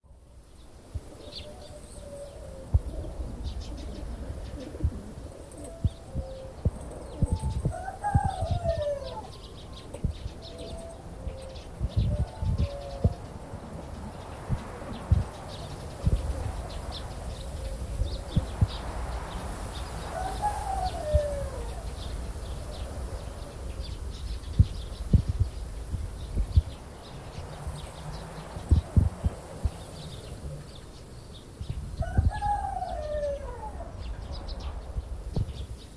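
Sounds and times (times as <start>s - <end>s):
birds chirping: 0.5s - 35.9s
pigeons cooing: 1.2s - 15.6s, 20.2s - 22.0s
bird call rising and falling: 20.1s - 22.9s.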